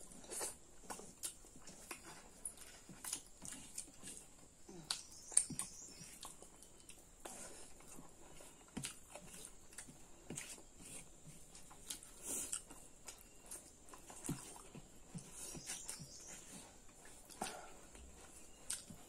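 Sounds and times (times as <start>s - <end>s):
people chewing: 0.0s - 19.0s
mouth smacks and clicks: 18.6s - 19.0s.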